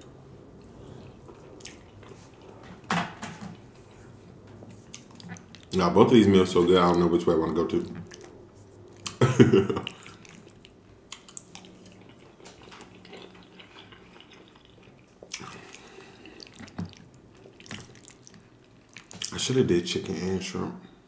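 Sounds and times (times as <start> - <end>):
wet chewing and mouth clicks: 0.5 - 2.9, 3.5 - 5.8, 6.8 - 9.2, 9.8 - 19.5.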